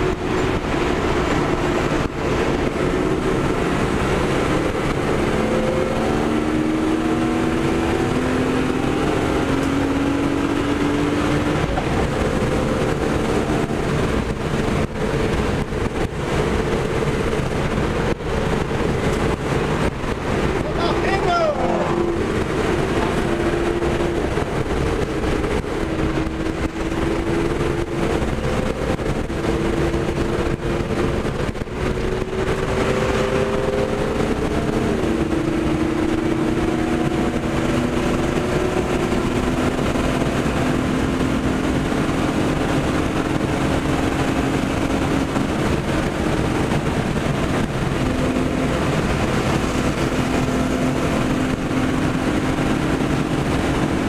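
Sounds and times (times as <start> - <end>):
car engine running hard: 0.0 - 54.0
tyre and wind noise: 0.0 - 54.0.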